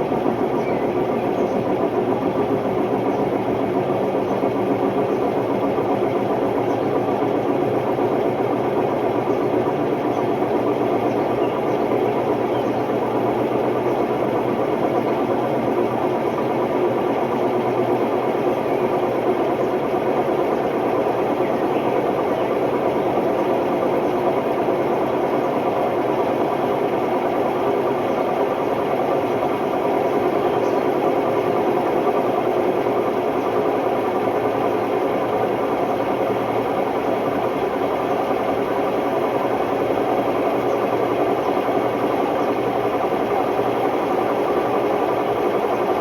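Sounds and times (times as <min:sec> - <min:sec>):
washing machine spinning: 0:00.0 - 0:46.0.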